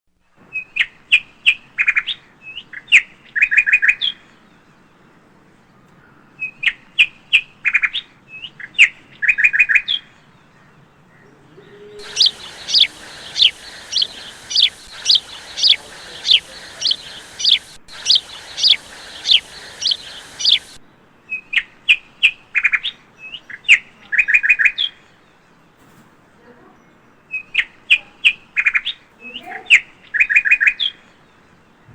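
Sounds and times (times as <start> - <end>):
descending whistled bird call: 11.5 - 20.8
bird chirps and trills: 11.6 - 20.8.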